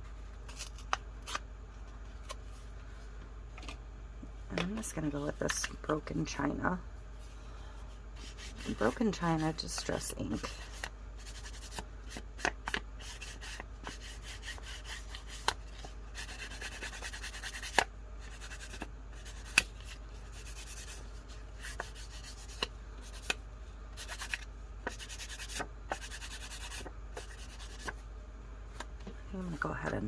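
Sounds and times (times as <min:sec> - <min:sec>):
ink pad rubbing on paper: 0:08.2 - 0:12.2, 0:13.0 - 0:15.5, 0:16.2 - 0:21.0, 0:21.6 - 0:23.3, 0:24.0 - 0:28.0.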